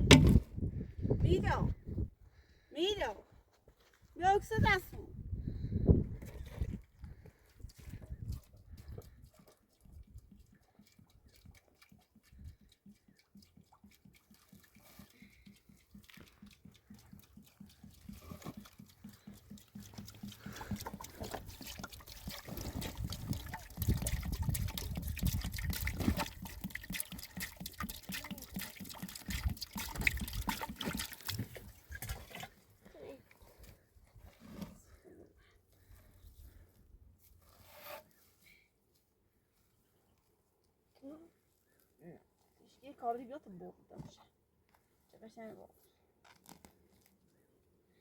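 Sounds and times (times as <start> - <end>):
liquid splashing: 8.2 - 32.7.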